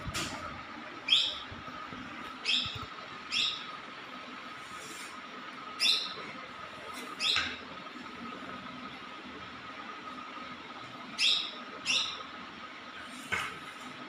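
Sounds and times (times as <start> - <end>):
bird chirping: 1.1 - 1.4, 2.4 - 3.7, 11.2 - 12.2.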